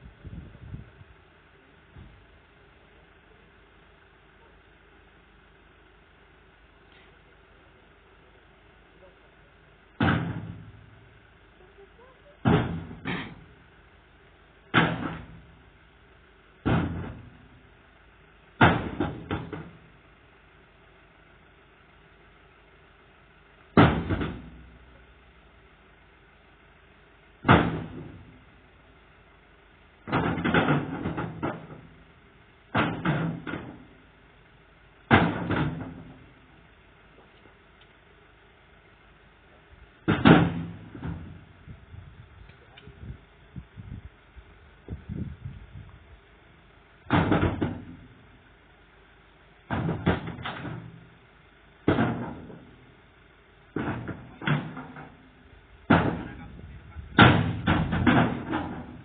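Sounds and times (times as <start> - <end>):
loud heavy bangs: 10.0 - 11.1, 12.4 - 13.6, 18.6 - 19.9, 23.7 - 24.8, 27.4 - 28.4, 40.0 - 41.6, 55.8 - 59.0
sharp knocks and bangs: 10.0 - 11.1, 12.4 - 13.6, 14.7 - 15.6, 16.6 - 17.6, 18.6 - 19.9, 23.8 - 24.8, 27.4 - 28.4, 30.0 - 32.0, 32.7 - 34.0, 35.1 - 36.3, 40.0 - 41.5, 47.1 - 48.3, 49.7 - 51.1, 51.8 - 52.8, 53.7 - 59.0.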